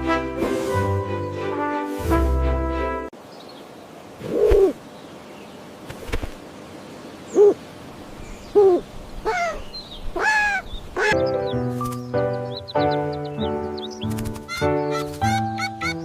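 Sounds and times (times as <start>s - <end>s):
owl hooting: 7.3s - 7.6s, 8.5s - 11.2s.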